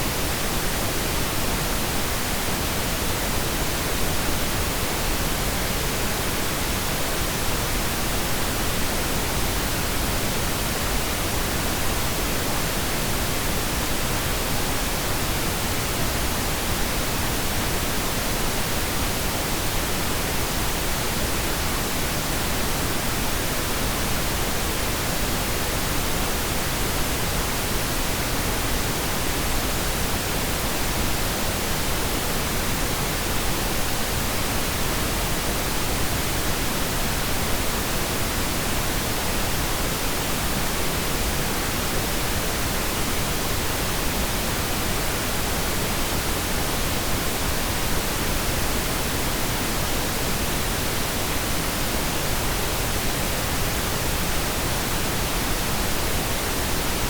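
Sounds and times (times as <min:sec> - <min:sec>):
steady pink noise hiss: 0:00.0 - 0:57.0.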